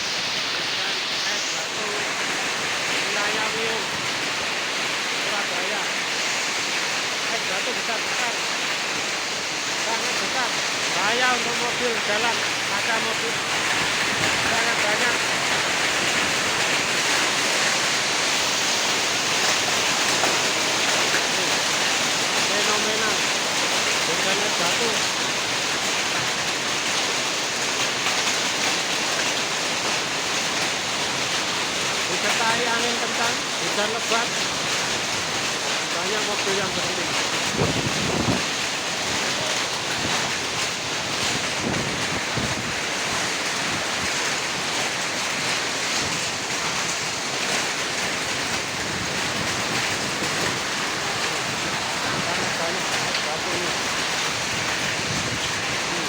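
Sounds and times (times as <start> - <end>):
strong wind: 0.0 - 24.2, 36.5 - 56.0
heavy rain and hail: 0.0 - 56.0
wind buffeting microphone: 37.3 - 39.2, 39.9 - 44.1, 48.2 - 56.0.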